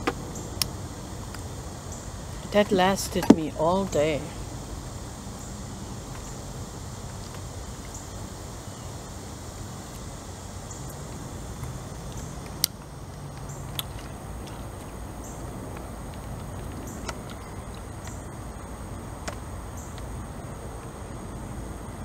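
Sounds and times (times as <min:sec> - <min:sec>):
outdoor background hum: 0:00.0 - 0:22.0.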